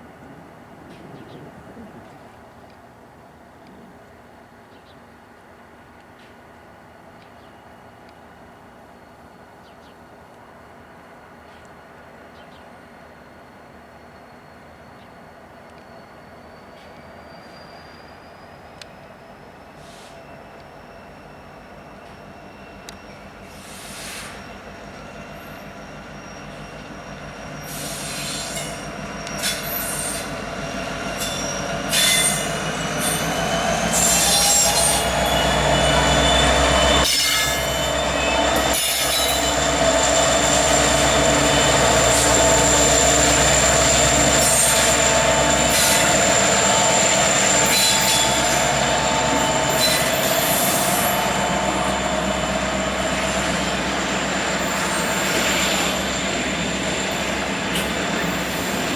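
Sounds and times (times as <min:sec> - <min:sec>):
freight train rolling past: 0:00.0 - 0:58.9
steel wheels squealing on rail: 0:12.4 - 0:58.9.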